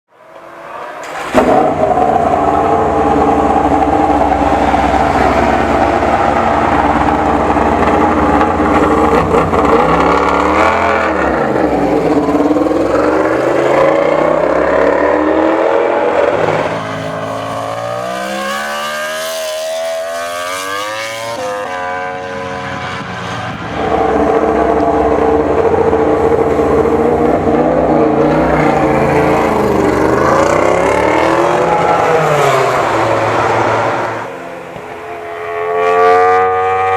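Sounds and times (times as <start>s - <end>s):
racing motorcycle engine at high revs: 35.4s - 36.9s.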